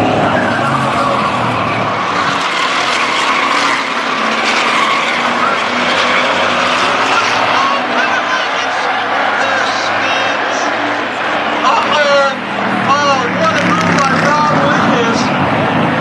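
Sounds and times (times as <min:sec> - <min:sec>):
racing truck engines: 0:00.0 - 0:16.0.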